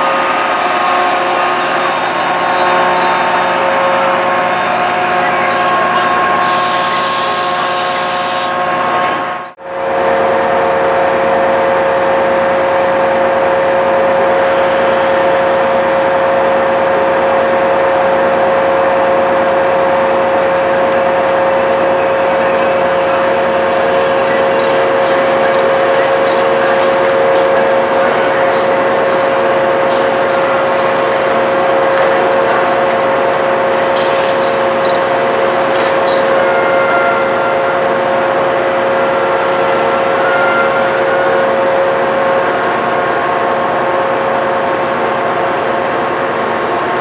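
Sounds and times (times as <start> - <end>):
train coaches humming: 0.0 - 47.0
loud hiss of air: 6.4 - 8.6.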